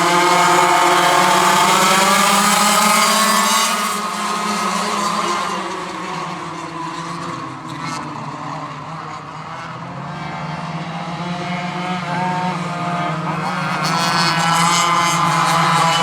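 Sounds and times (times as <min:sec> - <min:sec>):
go-kart engines revving: 0:00.0 - 0:16.0.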